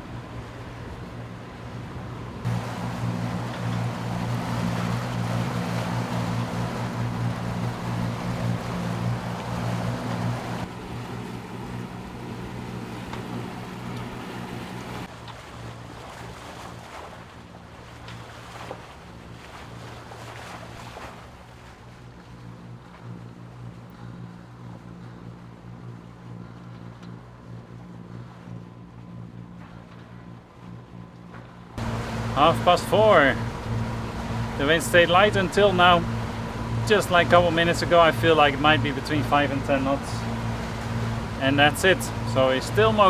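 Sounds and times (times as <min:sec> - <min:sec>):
water rushing and splashing: 0:00.0 - 0:22.1, 0:31.8 - 0:43.0
boat engine hum: 0:00.0 - 0:43.0.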